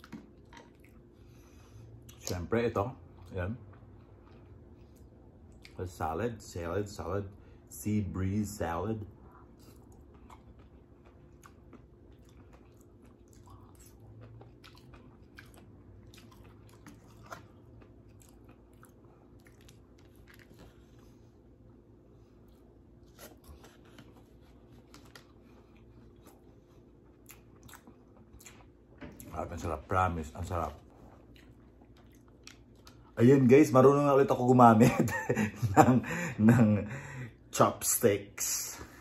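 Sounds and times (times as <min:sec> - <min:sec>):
person chewing: 0:00.0 - 0:02.4, 0:03.0 - 0:05.8, 0:09.2 - 0:21.4, 0:22.3 - 0:29.3, 0:30.9 - 0:33.2.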